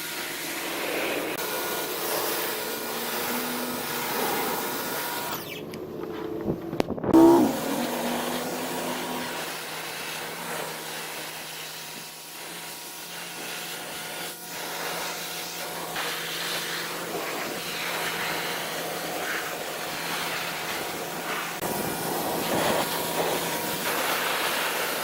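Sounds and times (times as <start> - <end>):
pressure washer motor humming: 0.0 - 25.0
water jet hissing: 0.3 - 5.6, 7.2 - 14.9.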